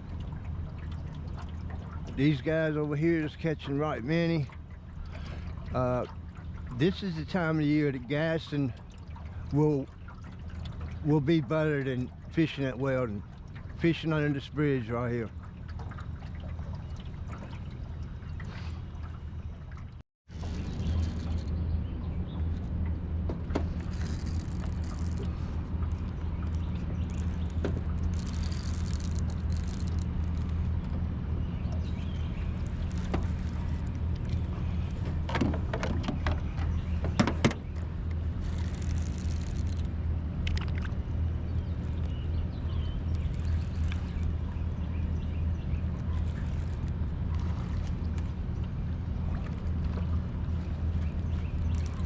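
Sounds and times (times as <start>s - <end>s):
engine humming: 0.0s - 52.0s
small birds chirping: 23.9s - 35.0s, 41.5s - 46.9s, 50.5s - 52.0s.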